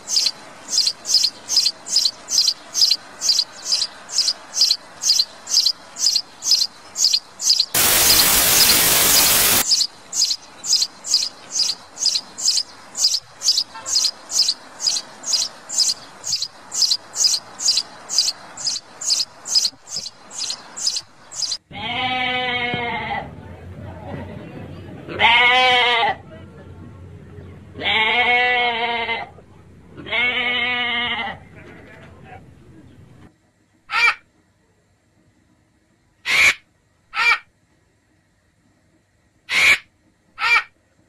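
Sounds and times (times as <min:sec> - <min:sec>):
loud hiss: 0:07.5 - 0:10.3.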